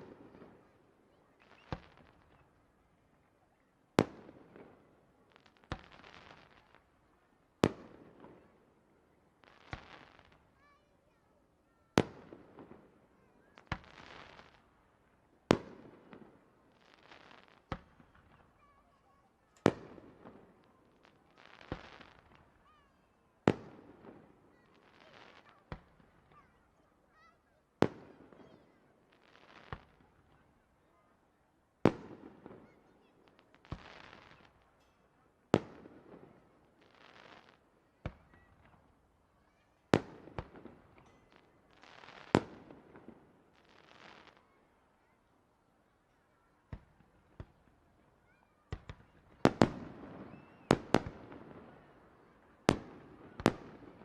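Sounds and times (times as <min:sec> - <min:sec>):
fireworks bangs: 0:48.7 - 0:52.0, 0:52.7 - 0:54.0.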